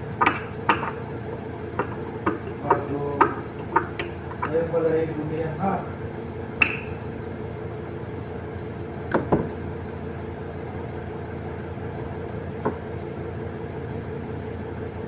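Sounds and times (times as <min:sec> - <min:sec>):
knocks: 0:00.0 - 0:04.8, 0:06.6 - 0:07.1
machine hum: 0:00.0 - 0:14.2.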